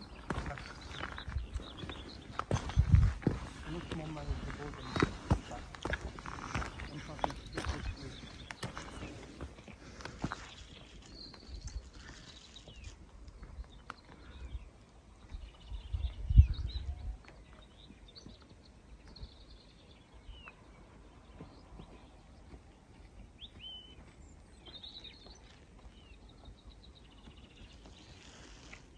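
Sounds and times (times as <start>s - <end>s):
songbirds chirping and trilling: 0.0s - 28.9s
low rumble on microphone: 15.4s - 17.2s.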